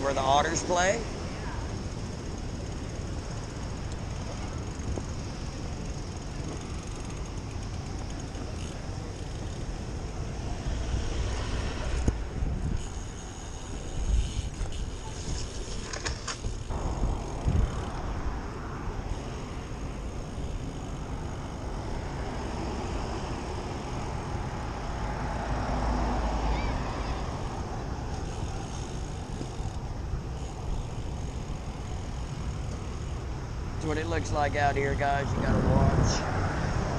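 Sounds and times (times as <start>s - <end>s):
moving bicycle rumble: 0.0s - 36.9s
wind buffeting microphone: 0.0s - 36.9s.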